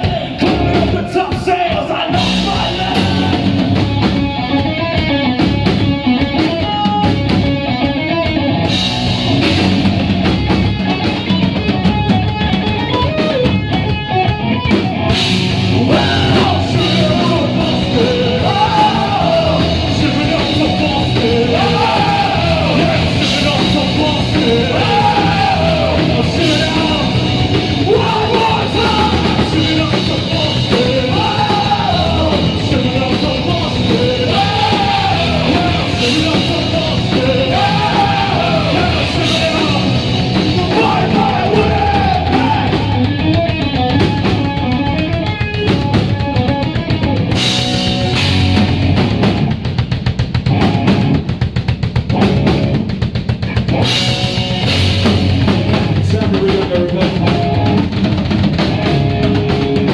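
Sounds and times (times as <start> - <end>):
person singing: 0.0 - 4.0, 15.6 - 43.2
live punk rock band playing: 0.0 - 59.9.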